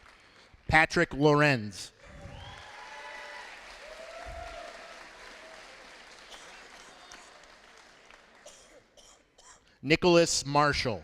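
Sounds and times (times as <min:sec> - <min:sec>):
audience applauding: 0:00.0 - 0:00.7, 0:02.0 - 0:08.6.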